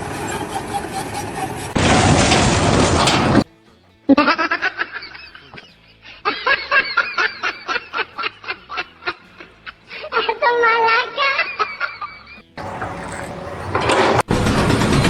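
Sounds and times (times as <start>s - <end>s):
person laughing hard: 4.1s - 10.4s, 11.3s - 12.4s.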